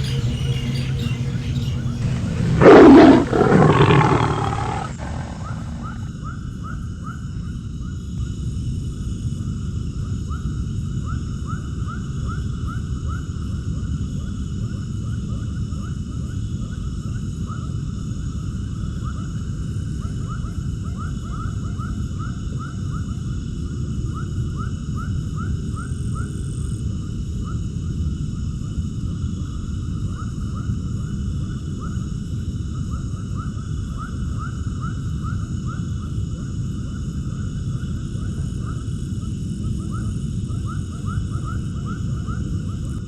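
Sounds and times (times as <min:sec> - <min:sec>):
rapid animal chirps: 0:00.0 - 0:06.1.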